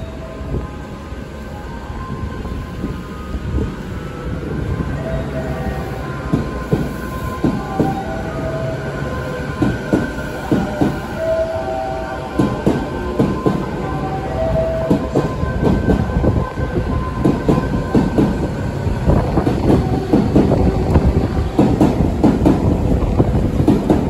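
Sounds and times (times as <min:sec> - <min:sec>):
train wheels clacking over rail joints: 0:09.6 - 0:11.0, 0:19.4 - 0:24.0.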